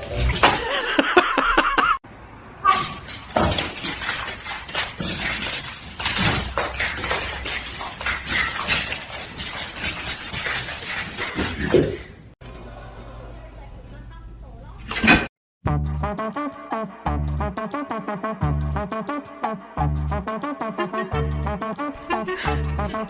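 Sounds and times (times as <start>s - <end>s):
clattering and clinking objects: 2.7s - 12.2s.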